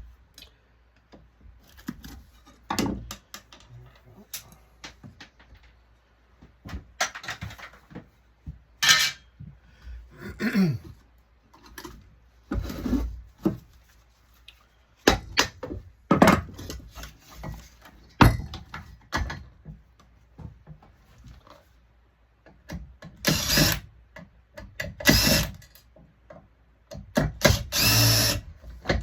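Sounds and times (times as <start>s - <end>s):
metal parts and tools clinking: 8.8s - 9.3s.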